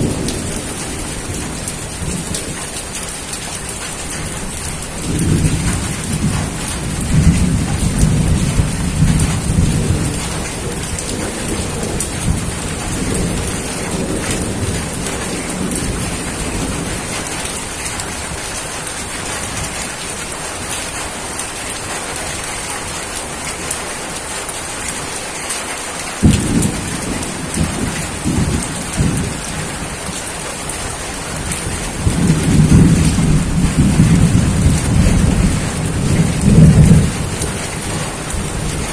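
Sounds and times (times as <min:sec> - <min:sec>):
thunder rumbling: 0:00.0 - 0:19.9, 0:26.2 - 0:38.9
heavy rain: 0:00.0 - 0:38.9
thunderclap: 0:03.7 - 0:18.5, 0:26.2 - 0:38.9.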